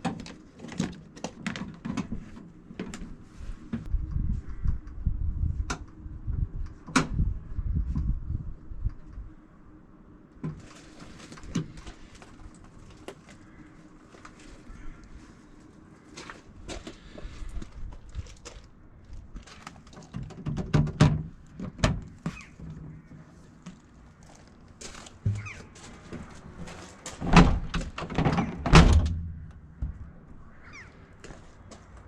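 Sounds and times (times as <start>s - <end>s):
knocks and clunks: 19.9s - 23.3s, 25.2s - 30.4s.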